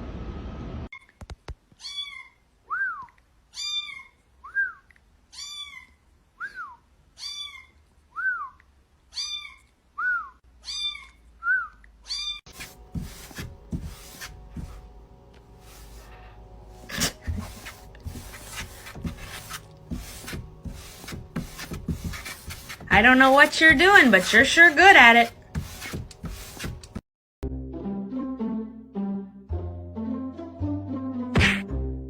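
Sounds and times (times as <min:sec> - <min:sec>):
cat meowing: 0:05.3 - 0:06.0, 0:07.2 - 0:07.8, 0:09.1 - 0:09.7, 0:10.6 - 0:11.2, 0:12.0 - 0:12.5
rubbing and knocking noises: 0:12.5 - 0:27.0.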